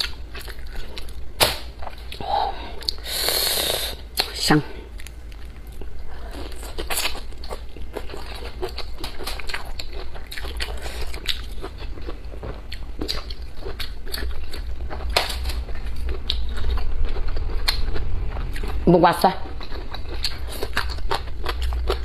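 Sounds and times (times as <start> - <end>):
crunchy chili pepper chewing: 5.0 - 18.8, 19.4 - 22.0.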